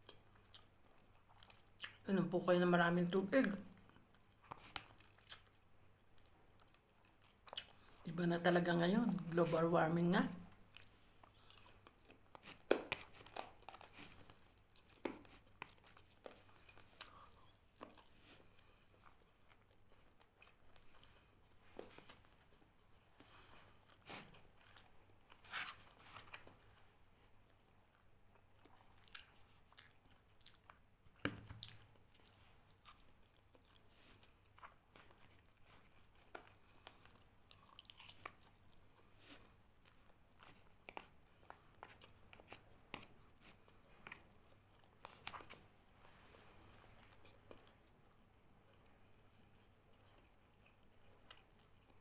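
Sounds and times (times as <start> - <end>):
person chewing and biting: 3.8 - 8.0, 10.7 - 26.6, 27.9 - 45.6
food crunching: 3.8 - 8.1, 10.5 - 45.7.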